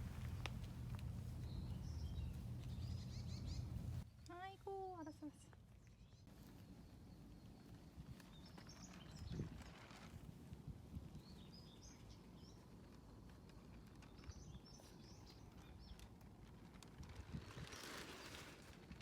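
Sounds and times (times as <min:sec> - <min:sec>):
low steady rumble: 0:00.0 - 0:04.1
distant birds chirping: 0:00.0 - 0:04.3.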